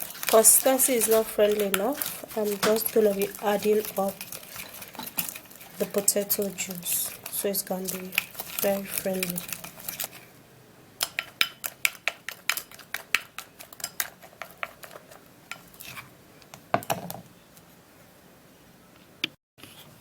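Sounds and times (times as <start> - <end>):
spoon clinking against a bowl: 0.0 - 10.1, 11.0 - 15.7.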